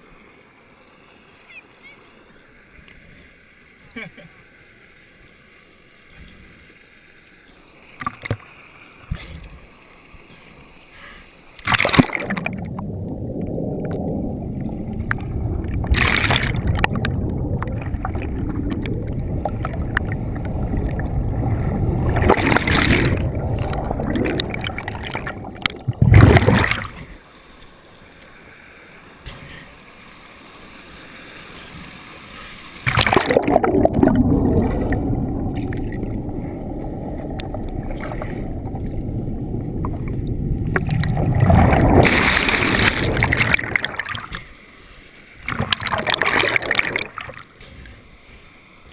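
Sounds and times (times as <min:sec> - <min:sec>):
water splashes: 0:00.0 - 0:48.9
muffled waterfall rushing: 0:08.7 - 0:44.2.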